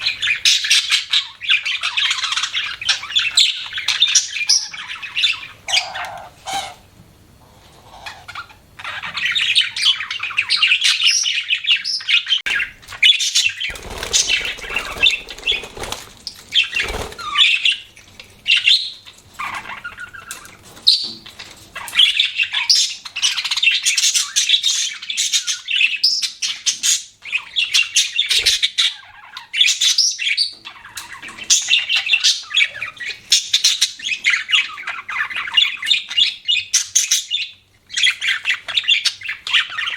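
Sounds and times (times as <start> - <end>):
budgerigars chirping: 0.0 - 6.9, 7.8 - 21.2, 21.8 - 39.9
wing flapping: 13.6 - 17.6.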